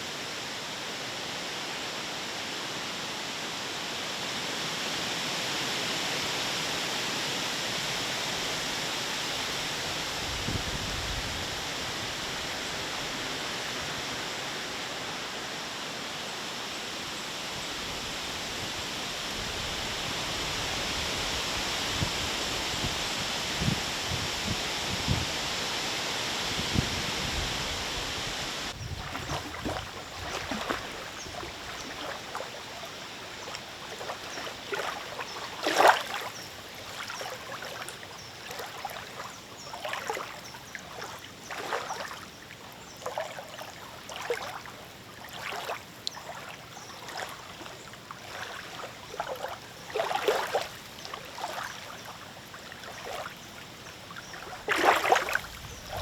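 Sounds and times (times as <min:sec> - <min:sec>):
wind noise: 0:10.0 - 0:12.9, 0:17.8 - 0:32.0, 0:54.4 - 0:56.0
lake waves lapping: 0:28.2 - 0:56.0.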